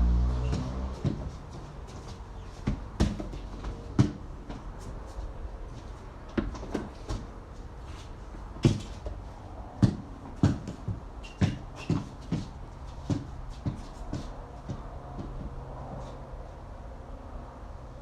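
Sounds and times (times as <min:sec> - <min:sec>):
basketball bouncing thuds: 0:02.6 - 0:04.6, 0:08.5 - 0:15.6.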